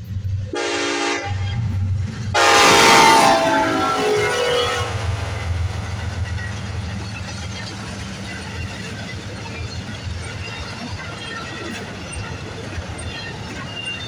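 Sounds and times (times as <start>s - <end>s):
diesel locomotive hum: 0.0s - 14.0s
freight cars rumbling on rails: 0.0s - 14.0s.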